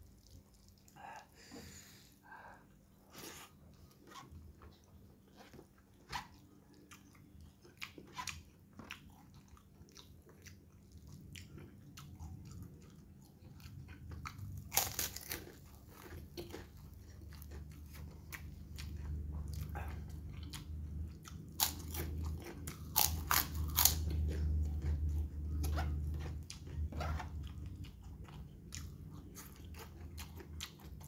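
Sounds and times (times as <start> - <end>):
person chewing food: 0.0 - 2.0, 2.6 - 31.0
crunching bites: 21.5 - 24.4.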